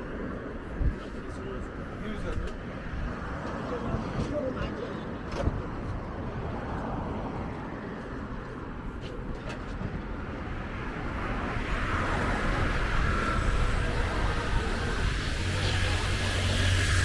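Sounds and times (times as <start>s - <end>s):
traffic noise: 0.0s - 17.0s
vehicle engine: 11.2s - 17.0s.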